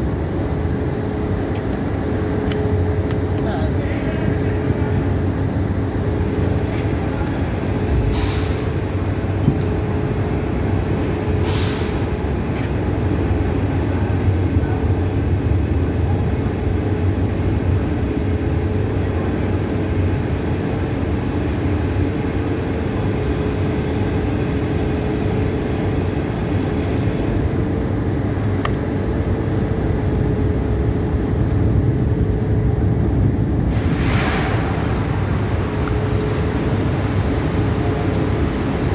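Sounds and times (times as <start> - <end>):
air hissing: 7.8 - 8.9, 11.4 - 12.1, 33.7 - 38.9
machine humming: 33.1 - 38.9.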